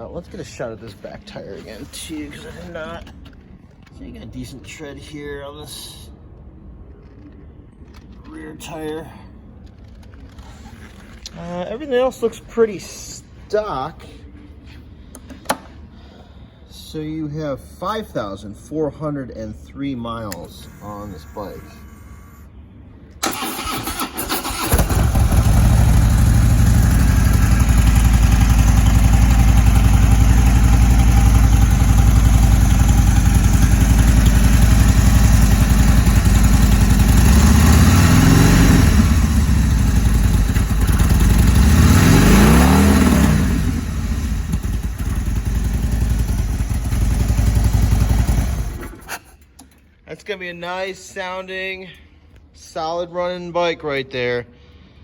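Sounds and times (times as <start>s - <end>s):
motorcycle engine revving: 23.2s - 49.2s
motorcycle engine cranking: 23.2s - 49.8s
motorcycle engine idling: 23.3s - 49.1s.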